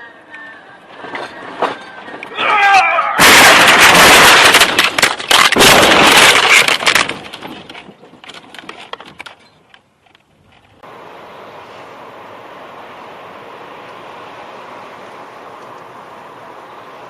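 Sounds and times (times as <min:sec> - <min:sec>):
loud harsh crash: 0:03.2 - 0:07.1
cracks and clatter: 0:03.2 - 0:10.8
steady hiss: 0:10.8 - 0:17.0.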